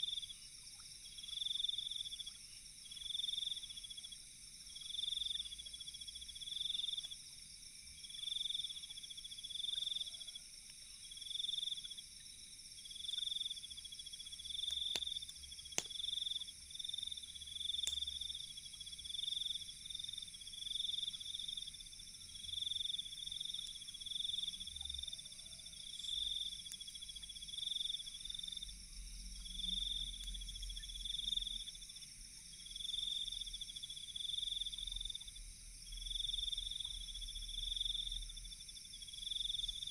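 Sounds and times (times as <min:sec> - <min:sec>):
night insects chirping: 0:00.0 - 0:39.9
campfire crackles: 0:12.9 - 0:28.4.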